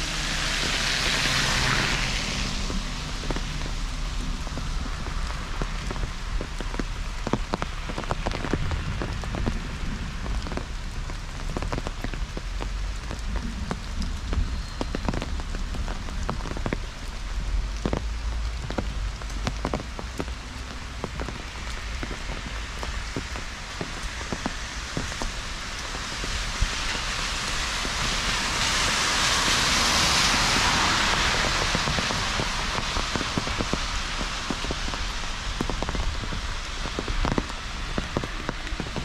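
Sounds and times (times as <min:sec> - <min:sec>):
heavy rain falling: 0:00.0 - 0:39.0
low rumble: 0:00.0 - 0:39.0.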